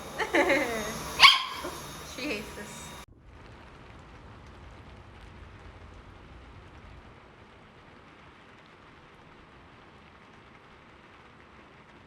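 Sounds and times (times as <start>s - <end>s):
steady rain hiss: 0.0s - 12.0s
rain drops ticking: 3.0s - 12.0s
low rumble: 3.1s - 7.8s.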